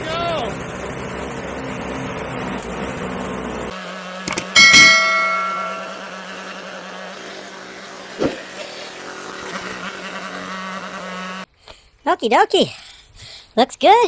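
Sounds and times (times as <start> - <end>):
snow blower engine running: 0.0 - 11.4
loud metallic clang: 4.3 - 6.0.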